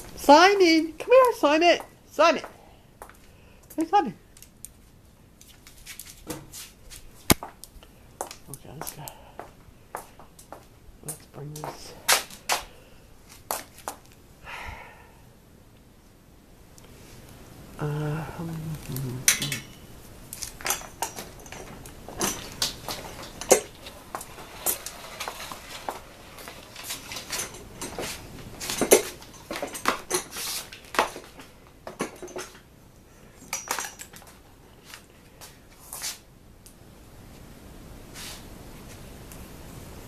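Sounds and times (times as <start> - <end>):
household objects clinking: 20.4 - 32.6.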